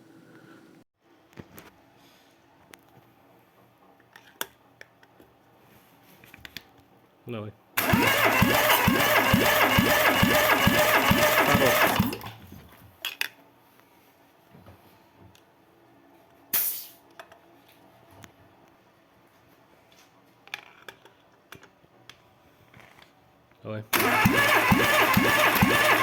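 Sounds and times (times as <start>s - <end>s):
engine cranking without starting: 7.8s - 12.4s, 23.9s - 26.0s
short hiss: 16.5s - 17.0s.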